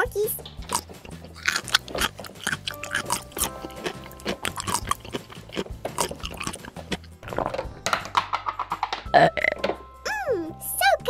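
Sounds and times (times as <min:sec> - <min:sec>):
light background music: 0:00.0 - 0:11.0
exaggerated chewing and munching: 0:00.5 - 0:07.8.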